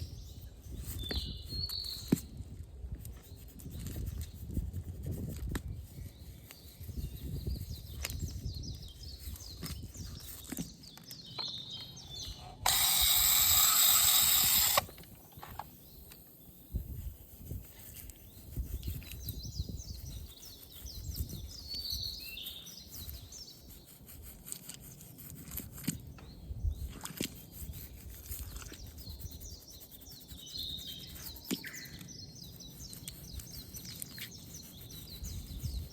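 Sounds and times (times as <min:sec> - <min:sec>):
loud hiss: 0:12.6 - 0:15.0.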